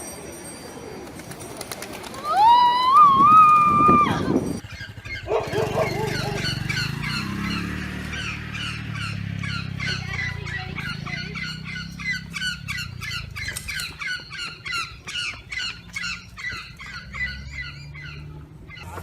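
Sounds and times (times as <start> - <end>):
birds squawking: 4.6 - 19.0.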